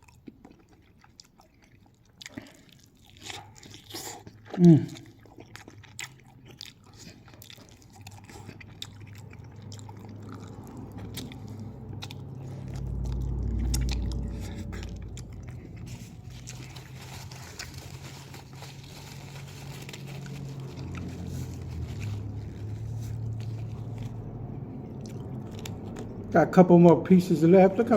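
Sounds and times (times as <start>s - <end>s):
chewing and crunching: 0.0s - 27.1s
steady low hum: 7.0s - 27.9s
low rumble: 9.2s - 27.9s.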